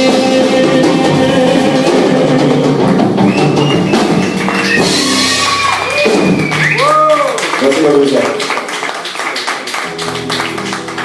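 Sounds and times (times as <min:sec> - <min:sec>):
drum kit hits: 0:00.0 - 0:06.8
live rock band playing: 0:00.0 - 0:07.7, 0:09.6 - 0:11.0.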